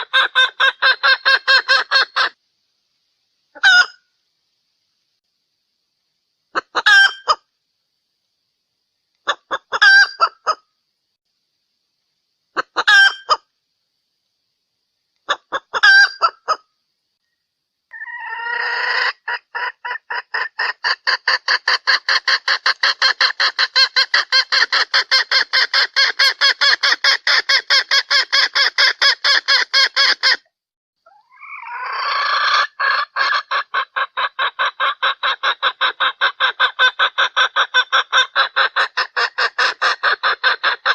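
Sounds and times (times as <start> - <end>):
hen calling and clucking: 0.0 - 2.4, 3.5 - 4.1, 6.5 - 7.5, 9.2 - 10.7, 12.5 - 13.5, 15.2 - 16.7, 17.9 - 40.9.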